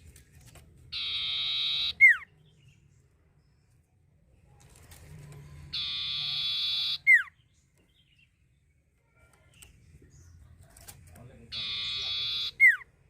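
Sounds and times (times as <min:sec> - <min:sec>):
bird buzzy trill and whistle: 0:00.9 - 0:02.3, 0:05.7 - 0:07.4, 0:11.5 - 0:12.9.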